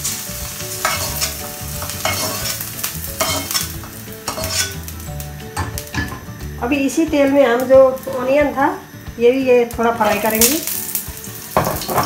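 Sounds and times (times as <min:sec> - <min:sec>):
skimmer scraping a pan: 0:00.0 - 0:05.0
oil sizzling in a frying pan: 0:00.0 - 0:12.0.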